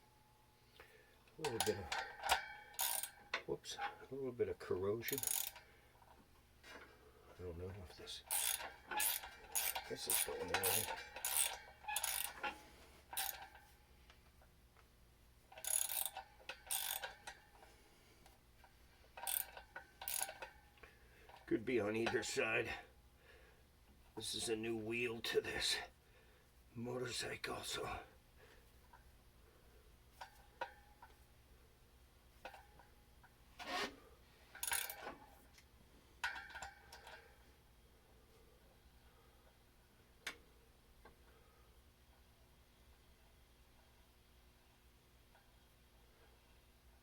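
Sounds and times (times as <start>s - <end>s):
metal clicking and rattling: 8.3s - 13.7s, 34.5s - 35.3s.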